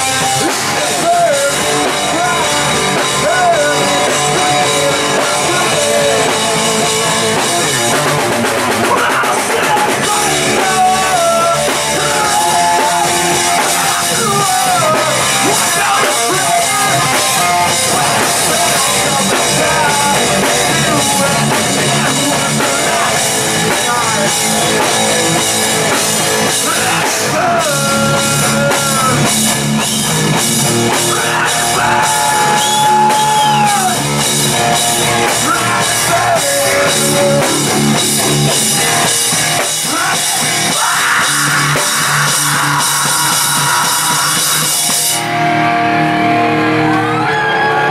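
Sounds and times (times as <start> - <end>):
rock band playing live: 0.0 - 47.9.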